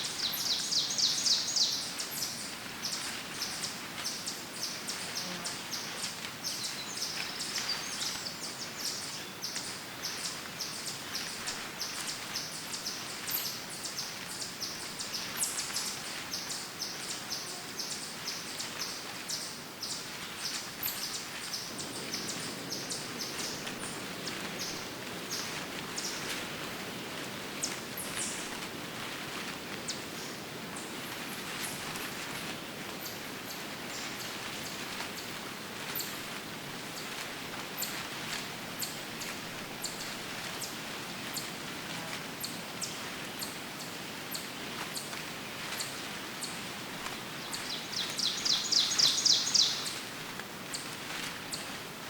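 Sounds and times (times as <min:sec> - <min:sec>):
leaves rustling: 0:00.0 - 0:52.0
steady outdoor hiss: 0:00.0 - 0:52.0
birds chirping: 0:47.4 - 0:50.0.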